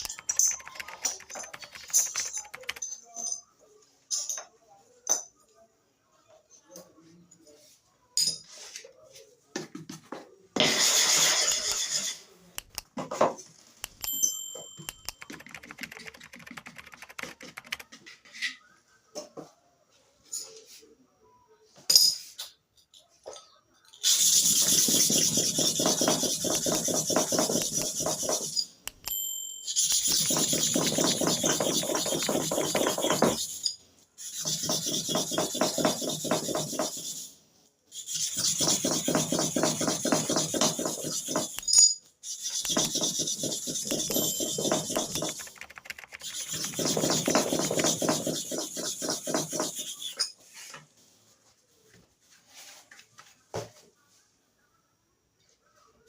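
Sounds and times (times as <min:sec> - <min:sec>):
blade scraping on sharpening stone: 0:10.8 - 0:12.3, 0:24.0 - 0:28.7, 0:29.7 - 0:37.3, 0:38.0 - 0:45.4, 0:46.3 - 0:50.4.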